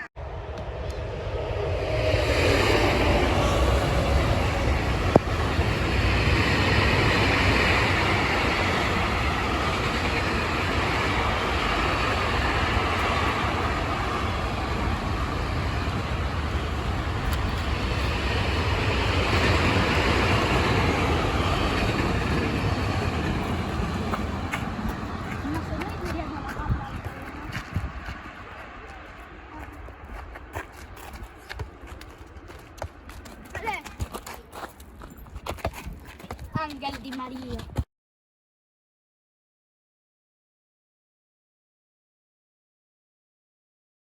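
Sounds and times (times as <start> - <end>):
freight train rumbling over rails: 0.0 - 34.5.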